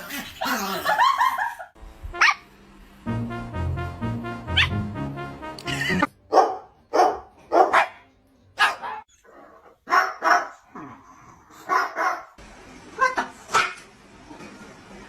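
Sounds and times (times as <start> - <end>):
dog barking: 6.3 - 9.1, 9.8 - 10.7, 11.6 - 12.4.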